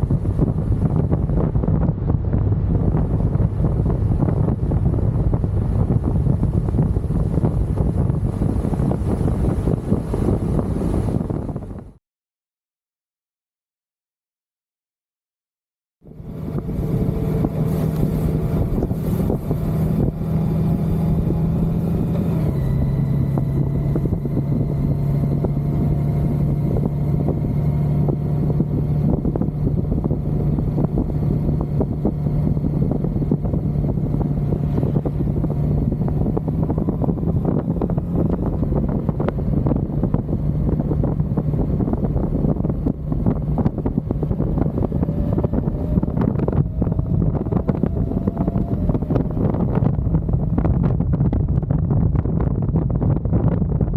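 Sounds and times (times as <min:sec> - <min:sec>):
wind noise on microphone: 0:00.0 - 0:12.0, 0:16.0 - 0:53.9
motorcycle engine running: 0:16.1 - 0:53.9.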